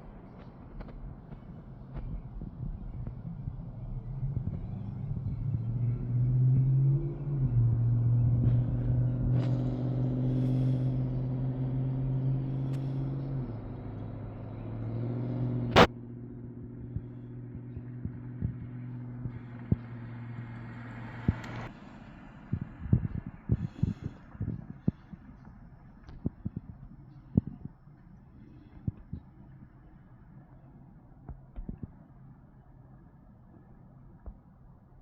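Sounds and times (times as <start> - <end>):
vehicle engine running: 0.0 - 35.0
sharp crack: 15.7 - 15.9.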